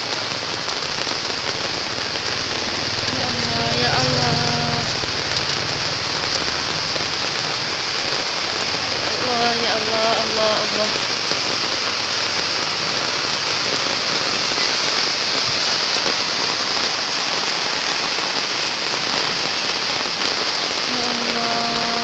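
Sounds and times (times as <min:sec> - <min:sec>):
heavy rain pouring: 0:00.0 - 0:22.0
person calling out: 0:20.9 - 0:22.0.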